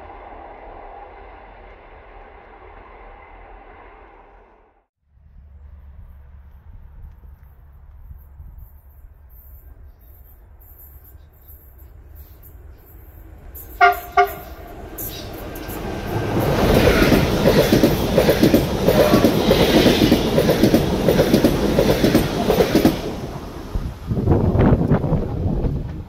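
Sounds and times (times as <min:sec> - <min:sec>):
train rumbling past: 0:00.0 - 0:26.0
train horn toots: 0:13.7 - 0:15.4, 0:18.9 - 0:20.0.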